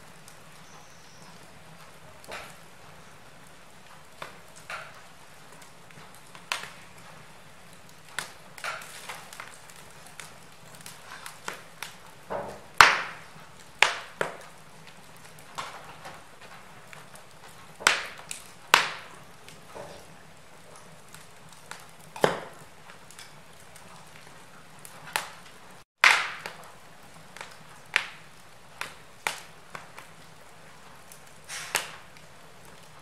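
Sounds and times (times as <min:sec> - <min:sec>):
faint steady hiss: 0:00.0 - 0:25.8
logs crackling in a fireplace: 0:00.0 - 0:33.0
sharp pops of burning wood: 0:00.0 - 0:33.0.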